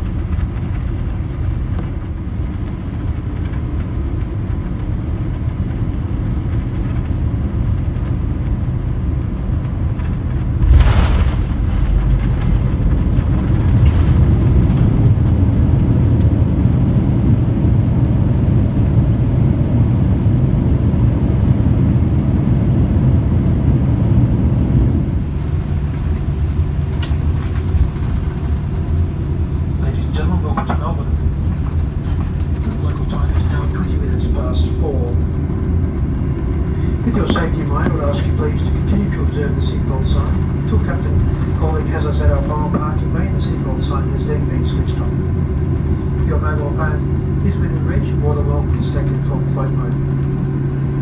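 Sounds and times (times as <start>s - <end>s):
aircraft cabin rumble: 0.0s - 51.0s
landing roll rumble: 10.2s - 15.5s.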